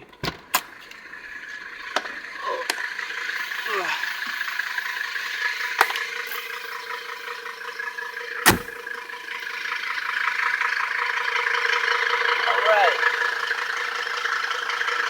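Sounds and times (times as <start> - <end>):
steady background hum: 1.1 - 9.0
car door clicking open: 8.5 - 8.8
car door shutting thump: 8.5 - 8.8.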